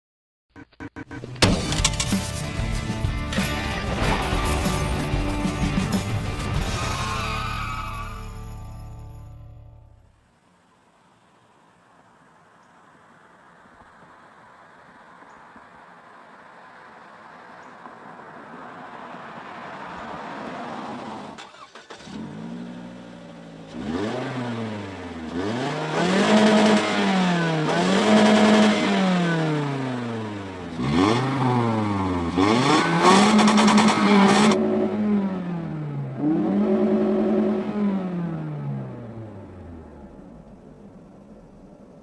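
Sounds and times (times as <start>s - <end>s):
car engine revving: 18.0s - 42.0s.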